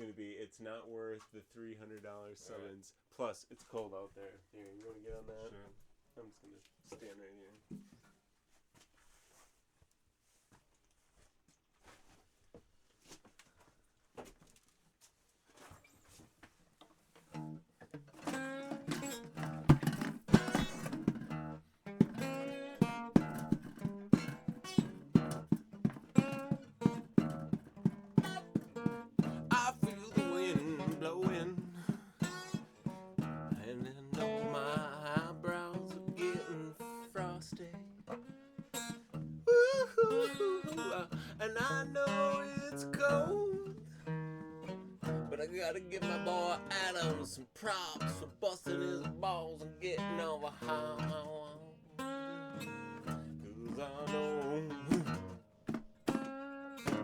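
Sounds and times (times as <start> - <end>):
guitar chords: 17.4 - 57.0
person singing: 29.2 - 32.7, 33.5 - 38.7, 39.4 - 44.1, 45.3 - 55.2.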